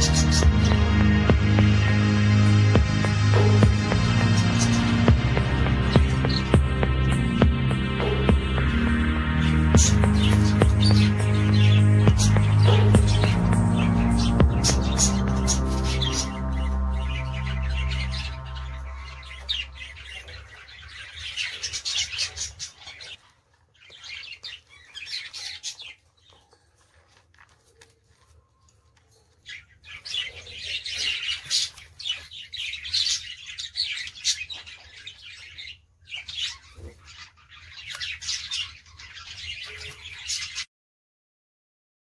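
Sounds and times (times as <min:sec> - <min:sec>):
birds chirping and chattering: 0:00.0 - 0:40.7.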